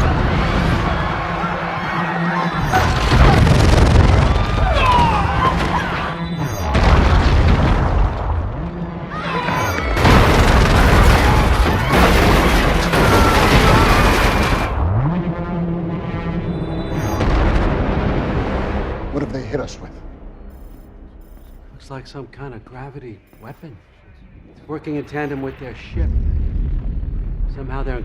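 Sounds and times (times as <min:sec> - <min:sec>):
low pulsing tone: 0:14.8 - 0:22.3
deep booming swells: 0:25.7 - 0:28.0.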